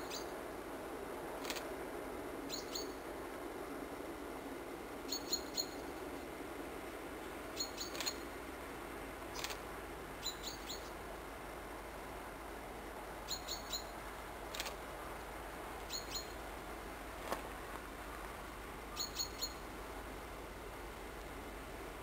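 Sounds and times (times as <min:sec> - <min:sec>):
small bird chirping: 0:00.0 - 0:00.3, 0:02.5 - 0:03.0, 0:05.1 - 0:05.8, 0:07.6 - 0:08.3, 0:10.2 - 0:11.0, 0:13.3 - 0:14.0, 0:15.9 - 0:16.4, 0:19.0 - 0:19.6
faint outdoor hiss: 0:00.0 - 0:22.0.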